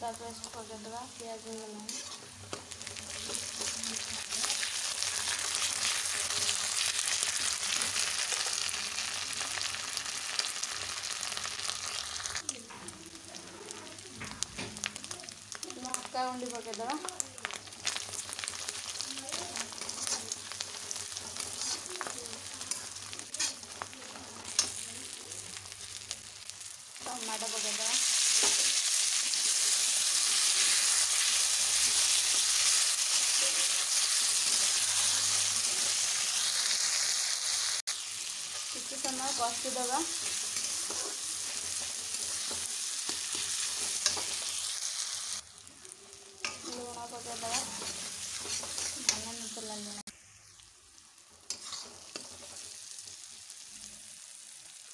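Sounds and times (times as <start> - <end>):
spices sizzling in hot oil: 0.0 - 54.9
metal spatula scraping a pan: 1.4 - 4.4, 17.8 - 24.9, 38.4 - 44.8, 46.4 - 49.7, 51.4 - 52.7.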